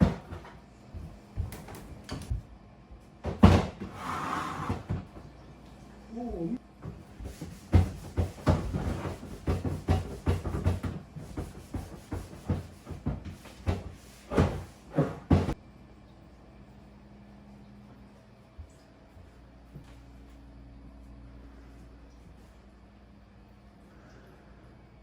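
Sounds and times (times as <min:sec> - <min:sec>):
faint steady hum: 0:15.5 - 0:25.0.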